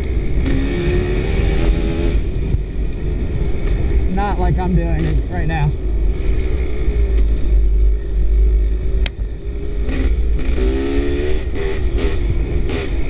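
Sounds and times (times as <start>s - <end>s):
dirt bike engine revving: 0.2s - 2.3s, 9.5s - 13.0s.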